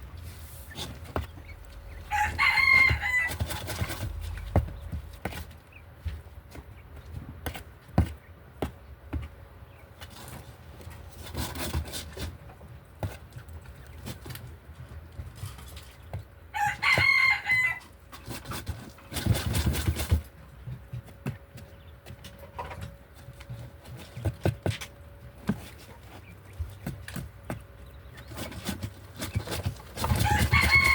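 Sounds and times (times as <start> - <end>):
rooster crowing: 2.0 - 3.5, 16.5 - 17.9, 30.1 - 30.9.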